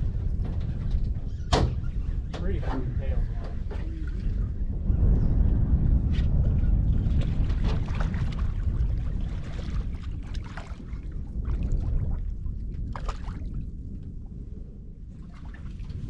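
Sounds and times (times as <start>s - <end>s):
wind buffeting microphone: 0.0s - 16.0s
water splashing and trickling: 7.1s - 13.8s, 15.1s - 16.0s.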